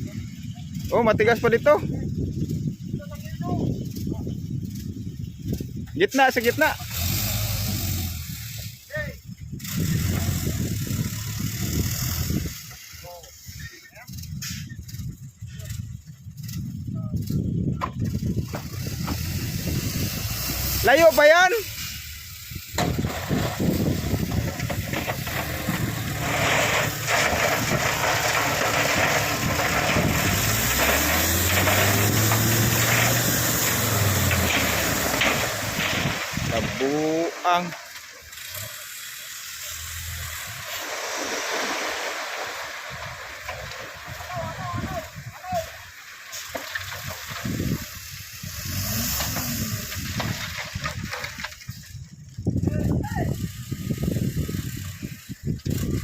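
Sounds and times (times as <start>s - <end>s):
heavy diesel machinery rumbling: 0.0s - 56.0s
hiss: 21.6s - 22.8s, 38.3s - 43.0s
heavy diesel engine running: 21.7s - 37.0s.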